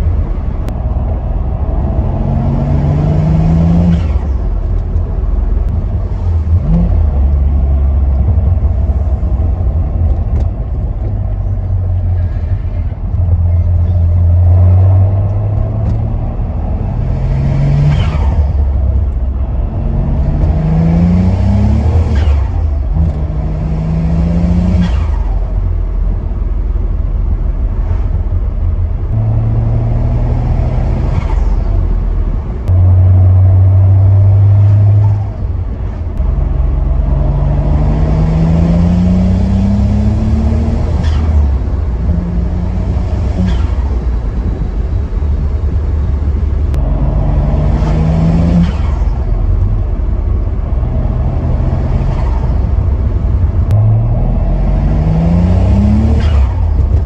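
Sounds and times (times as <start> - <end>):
loud low drone: 0.0 - 57.0
car engine revving hard: 1.0 - 4.6, 14.3 - 25.6, 29.1 - 31.9, 36.2 - 44.0, 46.7 - 49.7, 53.6 - 57.0.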